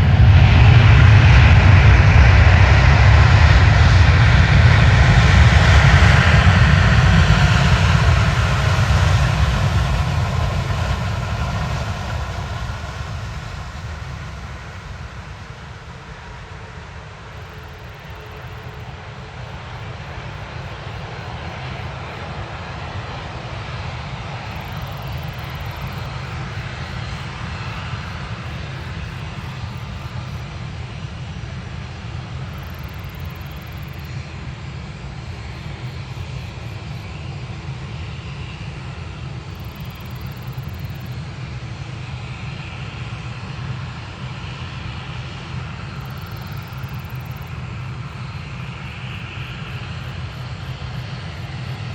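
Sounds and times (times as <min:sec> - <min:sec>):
jet engines rumbling: 0:00.0 - 0:51.9.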